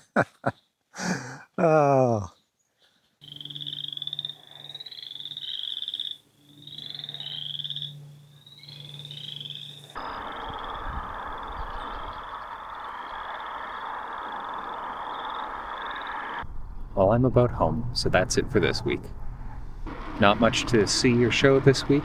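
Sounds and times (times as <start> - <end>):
frogs trilling: 3.2 - 16.5
steady rushing noise: 18.4 - 22.0.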